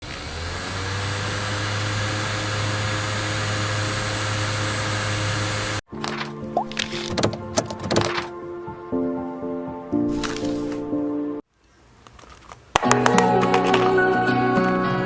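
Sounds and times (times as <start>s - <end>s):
electric motor and fan humming: 0.0s - 5.8s.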